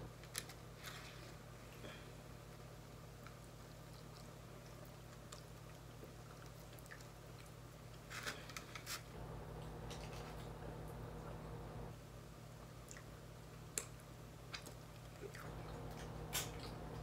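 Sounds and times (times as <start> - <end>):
low steady hum: 0.0 - 17.0
quiet wet chewing: 1.3 - 8.1, 12.6 - 17.0
aluminium foil crackling: 8.0 - 10.6.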